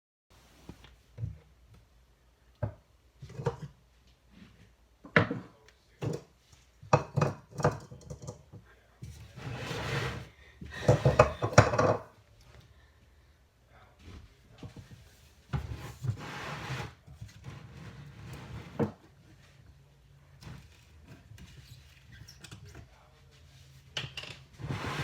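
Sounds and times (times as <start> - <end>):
containers and utensils knocking: 10.8 - 12.1.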